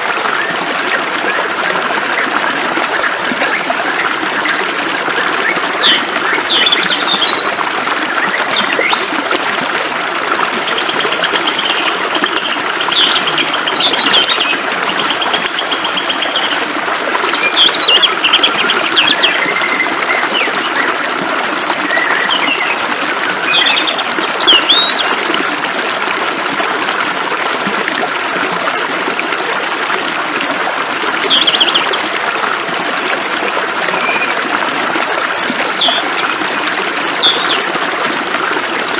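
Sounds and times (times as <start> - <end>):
birds trilling and chirping: 10.6 - 21.0, 21.8 - 25.2.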